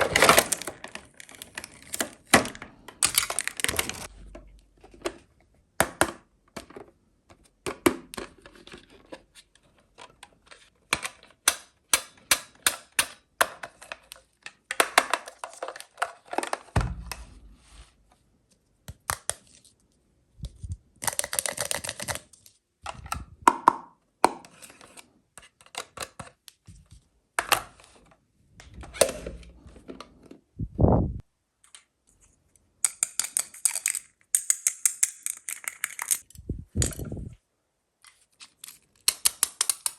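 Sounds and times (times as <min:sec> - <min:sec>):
plastic toys clicking and tapping: 0:00.1 - 0:04.1, 0:10.1 - 0:16.7, 0:21.0 - 0:24.5, 0:32.8 - 0:37.1, 0:38.5 - 0:39.9
dull thump: 0:16.8 - 0:17.5.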